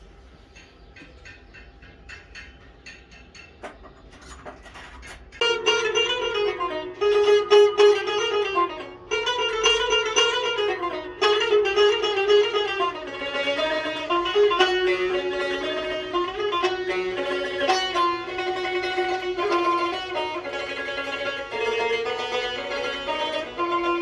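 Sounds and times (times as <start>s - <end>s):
plucked lute fast melody: 5.4s - 24.0s.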